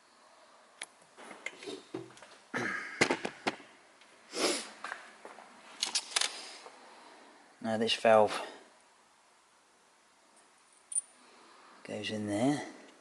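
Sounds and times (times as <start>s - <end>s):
short breathy noise: 4.3s - 4.8s.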